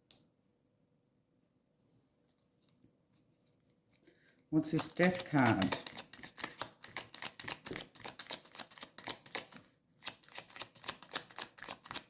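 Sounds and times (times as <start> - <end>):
cards being shuffled by hand: 4.6 - 12.0.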